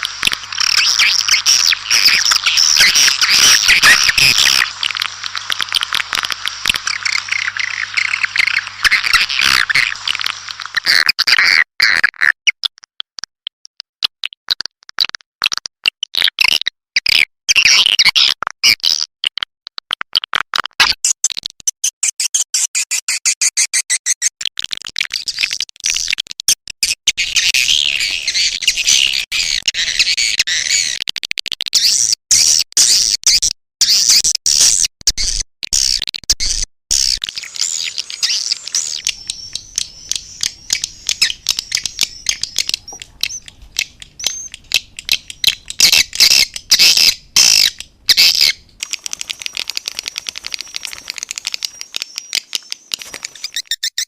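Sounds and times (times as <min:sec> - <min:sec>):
flock of swiftlets chirping: 0:00.0 - 0:11.0, 0:27.2 - 0:30.1, 0:36.9 - 0:54.0.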